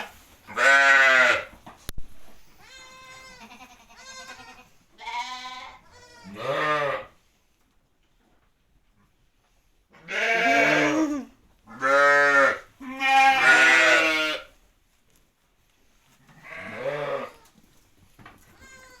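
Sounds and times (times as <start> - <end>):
sheep or goat bleating: 0.0 - 1.5, 2.6 - 7.1, 10.0 - 14.5, 16.3 - 17.6, 18.4 - 19.0.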